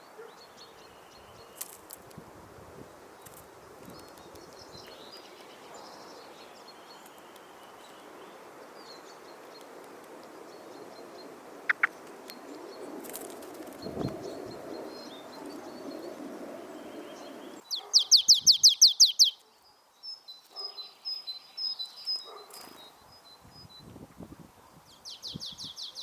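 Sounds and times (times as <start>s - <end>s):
songbirds chirping: 0.0s - 26.0s
outdoor hush: 11.0s - 22.7s
loud high bird chirps: 11.7s - 12.0s, 16.8s - 19.5s.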